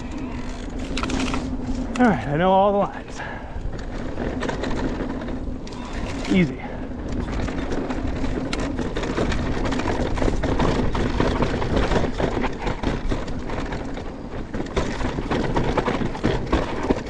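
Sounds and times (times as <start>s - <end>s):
bike clattering over bumps: 0.0s - 17.0s
bike tyres rolling over dirt: 0.0s - 17.0s
low wind rumble: 0.0s - 17.0s.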